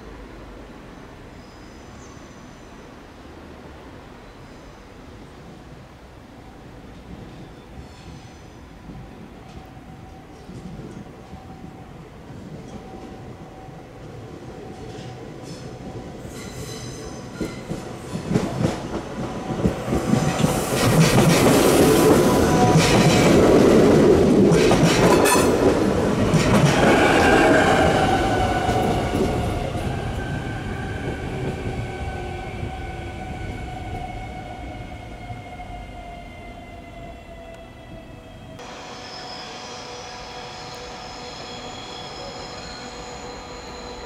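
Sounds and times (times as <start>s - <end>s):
train wheels clacking: 16.3s - 30.0s
train motor whine: 38.6s - 44.0s.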